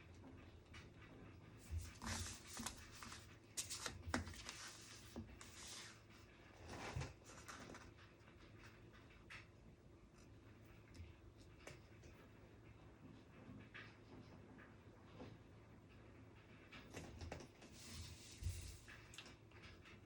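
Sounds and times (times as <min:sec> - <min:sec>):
paper rustling: 0:01.6 - 0:06.0.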